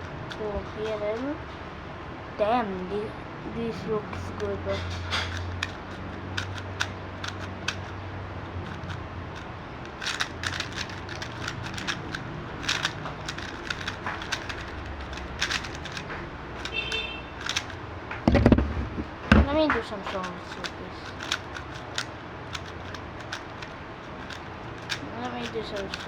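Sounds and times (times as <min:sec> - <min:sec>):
low steady hum: 0:00.0 - 0:26.0
plastic cube clicking: 0:05.3 - 0:08.0, 0:08.7 - 0:16.8, 0:17.4 - 0:17.8, 0:19.5 - 0:26.0.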